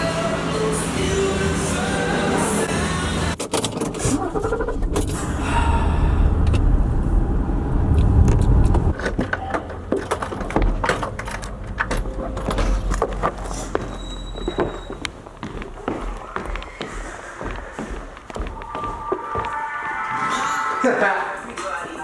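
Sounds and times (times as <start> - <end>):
low rumble: 4.2 - 9.0.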